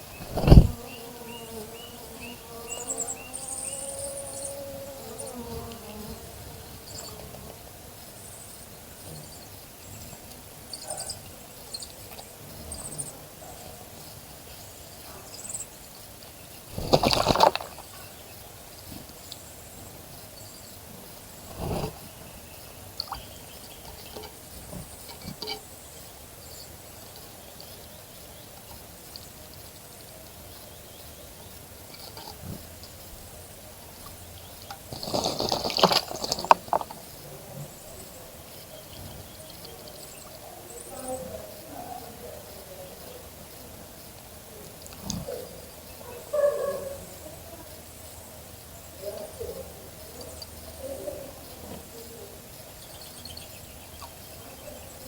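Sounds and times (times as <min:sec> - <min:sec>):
bird splashing in water: 0:00.2 - 0:00.9, 0:16.7 - 0:18.0, 0:34.9 - 0:37.0.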